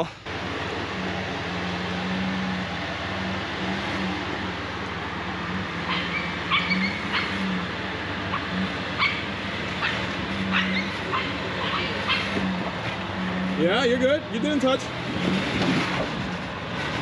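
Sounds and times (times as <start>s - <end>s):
vehicle engine running at low revs: 0.0s - 17.0s
dog yipping: 5.9s - 7.4s, 9.0s - 12.3s.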